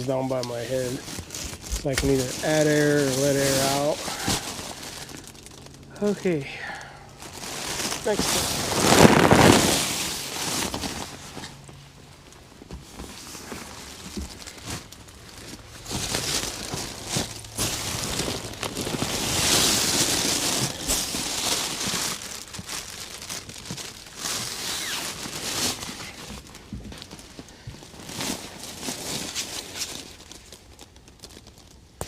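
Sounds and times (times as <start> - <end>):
material rustling and crinkling: 0.0 - 32.0.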